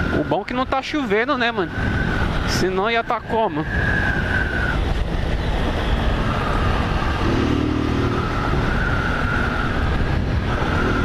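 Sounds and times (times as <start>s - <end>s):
wind rushing: 0.0s - 11.0s
motorcycle engine cruising: 3.8s - 11.0s.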